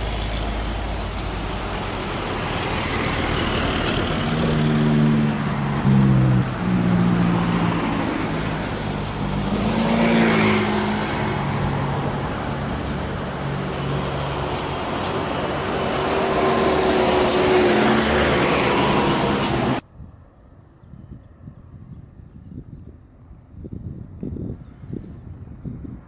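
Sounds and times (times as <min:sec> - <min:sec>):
diesel truck engine working hard: 0:00.0 - 0:19.8.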